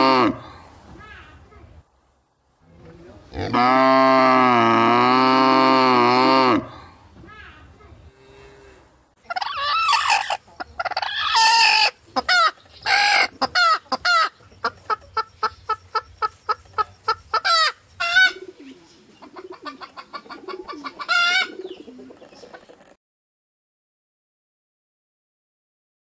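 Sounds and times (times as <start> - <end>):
chickens squawking: 9.2 - 22.9
chickens clucking: 9.2 - 23.0.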